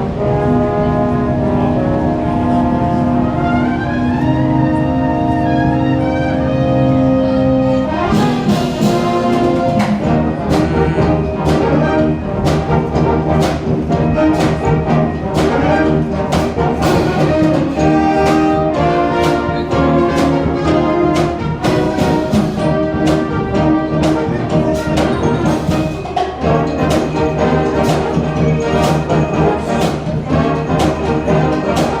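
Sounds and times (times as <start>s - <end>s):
wind band playing brass music: 0.0s - 32.0s
steady percussion beat: 7.9s - 32.0s.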